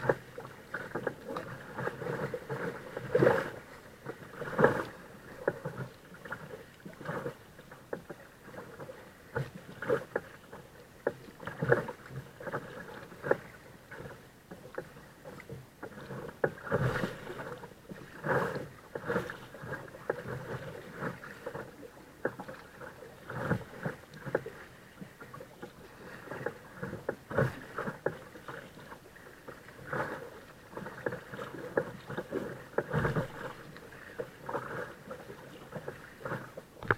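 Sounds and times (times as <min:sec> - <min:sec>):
paddle blades splashing: 0:00.0 - 0:36.9
steady wash of water: 0:00.0 - 0:36.9
water slapping against hull: 0:00.0 - 0:36.9.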